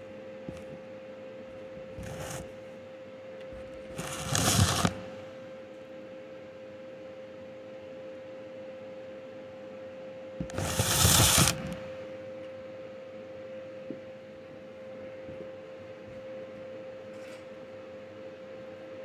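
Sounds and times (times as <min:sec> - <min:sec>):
faint steady hum: 0:00.0 - 0:19.0
welding crackling and hissing: 0:01.8 - 0:02.6, 0:03.5 - 0:05.4, 0:10.4 - 0:12.1.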